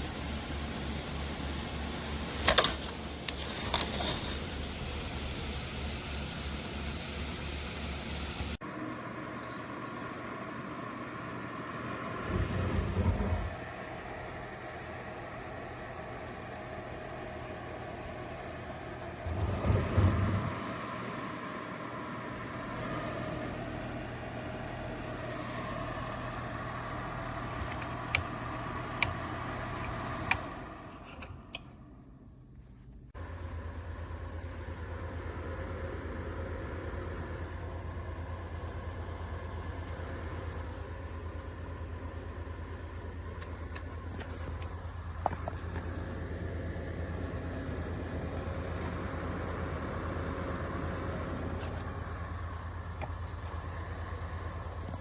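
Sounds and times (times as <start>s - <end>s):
electric heater fan whirring: 0.0s - 55.0s.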